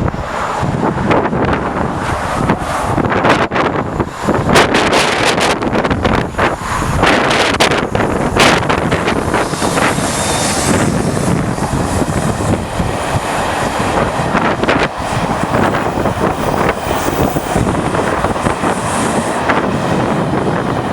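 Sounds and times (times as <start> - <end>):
train rumbling: 0.0 - 20.9
wind buffeting microphone: 0.0 - 20.9.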